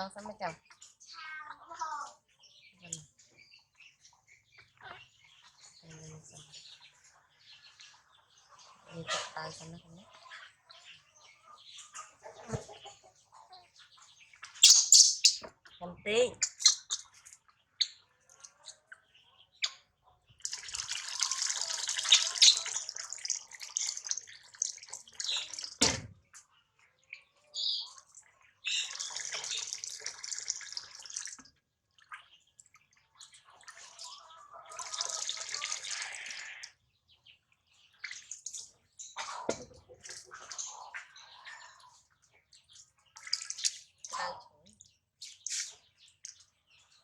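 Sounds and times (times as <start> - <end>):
bath water splashing: 20.4 - 25.9, 28.9 - 31.5, 43.1 - 44.0.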